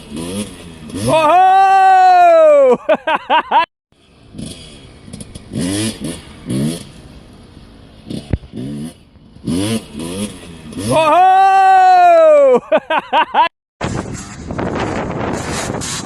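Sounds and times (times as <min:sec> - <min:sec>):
dirt bike engine revving: 0:00.0 - 0:02.1, 0:04.2 - 0:07.1, 0:08.0 - 0:12.0.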